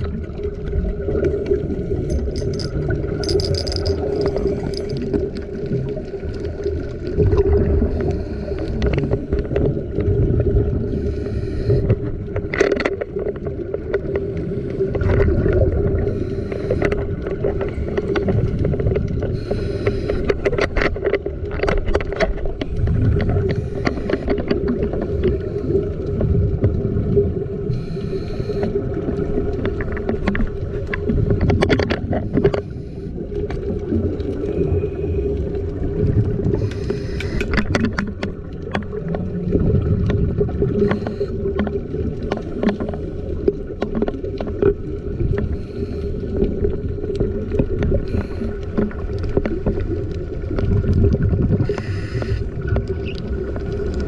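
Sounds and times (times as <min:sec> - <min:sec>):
diver exhaling bubbles: 0:00.0 - 0:12.4, 0:14.2 - 0:20.3, 0:38.7 - 0:42.2
underwater low drone: 0:00.0 - 0:54.0
underwater clicks: 0:01.2 - 0:07.7, 0:11.8 - 0:14.2, 0:16.5 - 0:27.0, 0:27.8 - 0:32.7, 0:35.2 - 0:45.6.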